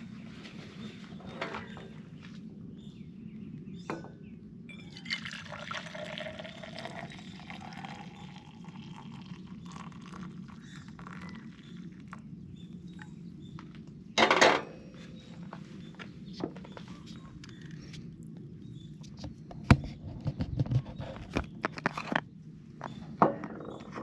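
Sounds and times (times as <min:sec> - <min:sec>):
liquid pouring into a container: 0:04.7 - 0:12.2.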